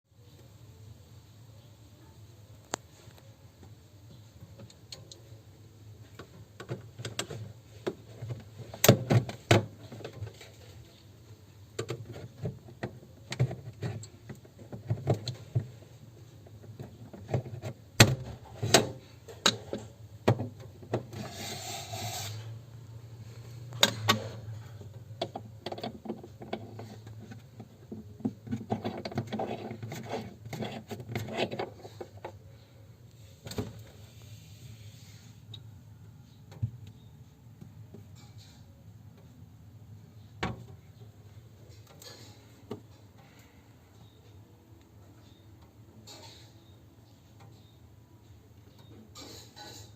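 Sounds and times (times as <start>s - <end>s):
rubbing and scraping: 11.9s - 22.6s, 24.5s - 32.7s.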